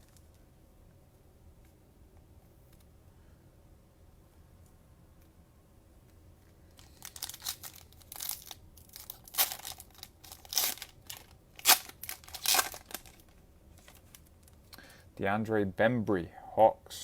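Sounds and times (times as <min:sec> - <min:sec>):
cellophane wrapper crinkling and ripping: 0:06.7 - 0:14.6.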